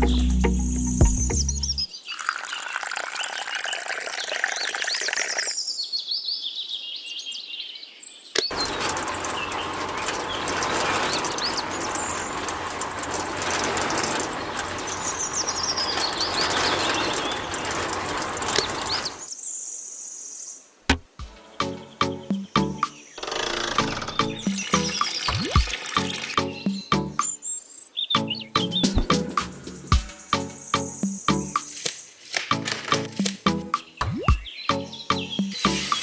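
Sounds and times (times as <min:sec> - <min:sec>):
small birds chirping: 0:21.4 - 0:36.0.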